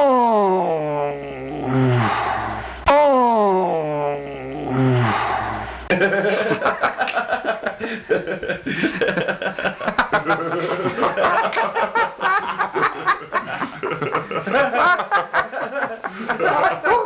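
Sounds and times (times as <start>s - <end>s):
voice gliding down in pitch: 0.0s - 5.9s
person snickering and chuckling: 0.0s - 7.2s.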